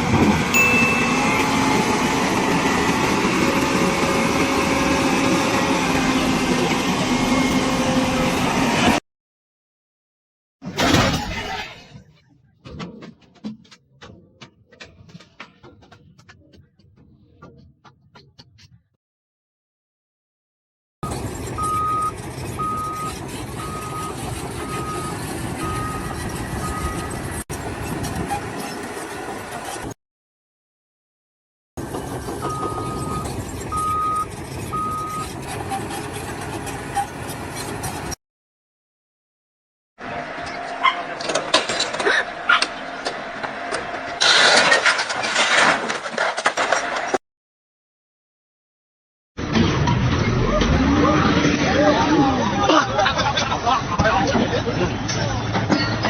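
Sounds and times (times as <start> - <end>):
construction site noise: 0.0 - 9.0, 10.6 - 18.8, 21.0 - 30.0, 31.8 - 38.2, 40.0 - 47.2, 49.4 - 56.0
steady machinery noise: 0.0 - 9.0, 31.8 - 38.2
reversing alarm beeping: 0.6 - 3.0, 21.6 - 27.2, 32.4 - 35.3.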